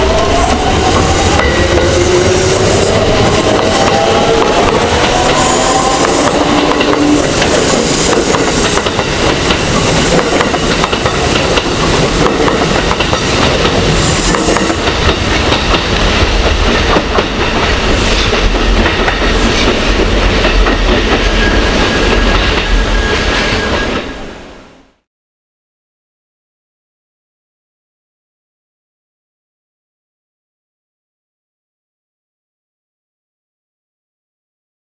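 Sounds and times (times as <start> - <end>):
train wheels clacking on rails: 0.0 - 24.2
heavy train rumble: 0.0 - 25.0.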